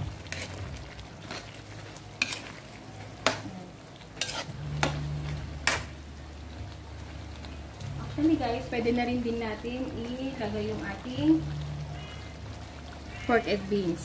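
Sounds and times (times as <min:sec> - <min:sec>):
low steady hum: 0:00.0 - 0:14.0
spoon stirring thick stew: 0:00.1 - 0:06.0.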